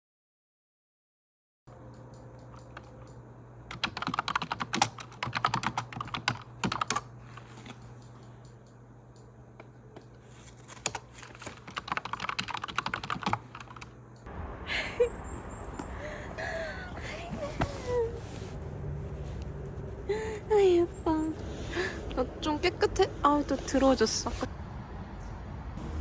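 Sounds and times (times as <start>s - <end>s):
keyboard typing: 2.2s - 7.8s, 10.7s - 13.9s
low hum: 13.6s - 26.0s.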